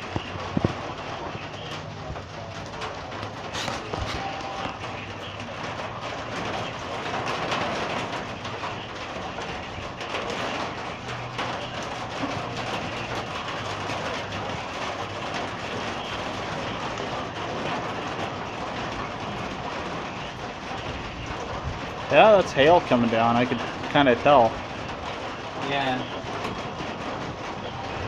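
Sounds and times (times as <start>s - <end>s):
hail falling: 0.0s - 28.0s.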